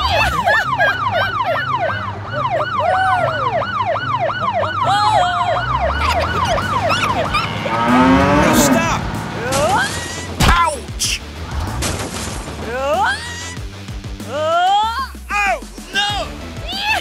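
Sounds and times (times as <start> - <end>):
police siren yelp: 0.0 - 9.0
low engine hum: 1.7 - 10.4.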